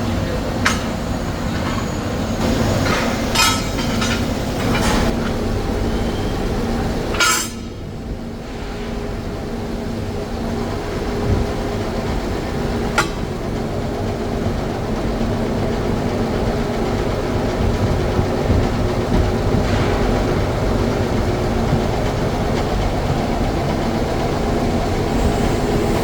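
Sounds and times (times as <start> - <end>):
workshop machinery humming: 0.0 - 26.0
sharp metallic clanks: 2.4 - 5.4, 7.1 - 7.8.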